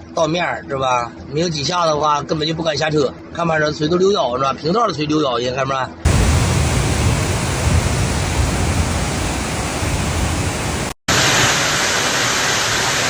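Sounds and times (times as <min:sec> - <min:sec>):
rushing floodwater: 0:06.1 - 0:13.0
torrential rain hissing: 0:06.1 - 0:13.0.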